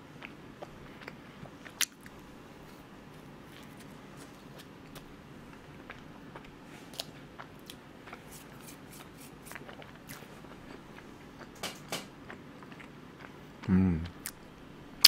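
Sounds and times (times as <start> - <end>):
wet mouth chewing sounds: 0.2 - 14.5.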